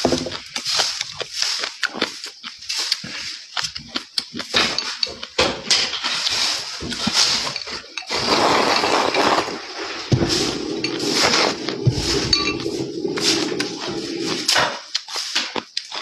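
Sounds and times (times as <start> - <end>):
chewing and crunching: 0.0 - 16.0
dishes clinking: 4.4 - 9.5, 10.1 - 14.8.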